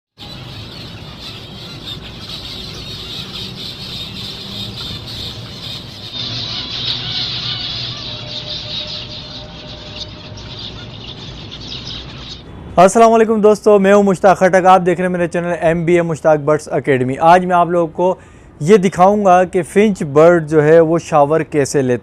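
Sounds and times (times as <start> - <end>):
finches chattering: 0.2 - 12.5.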